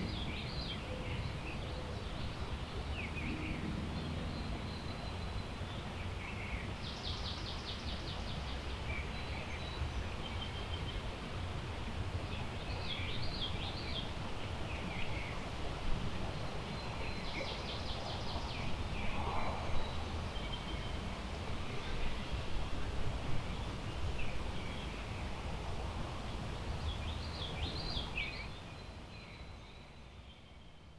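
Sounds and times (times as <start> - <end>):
songbirds singing: 0.0 - 11.1, 26.2 - 30.9
wind in trees: 0.0 - 30.9.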